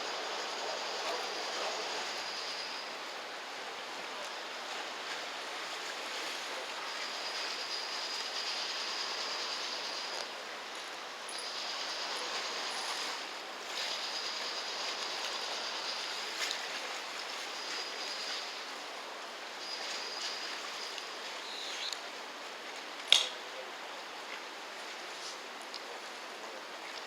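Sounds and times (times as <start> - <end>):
faint high whine: 0.0 - 22.2
water wash: 0.0 - 27.0
sharp click: 23.1 - 23.4.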